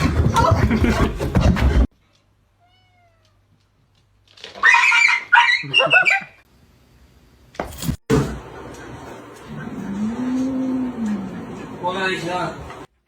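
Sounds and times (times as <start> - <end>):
cat meowing: 2.6 - 3.4.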